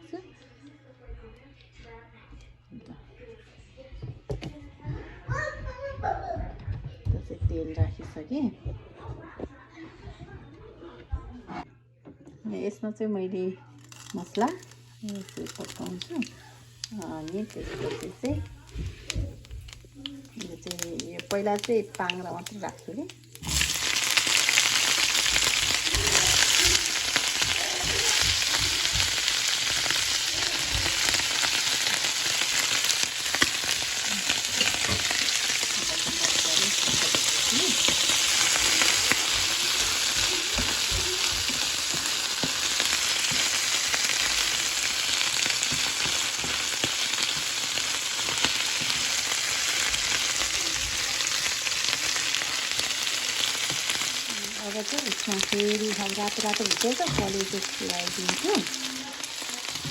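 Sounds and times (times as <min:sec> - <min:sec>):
food sizzling in hot oil: 0:13.8 - 0:59.9.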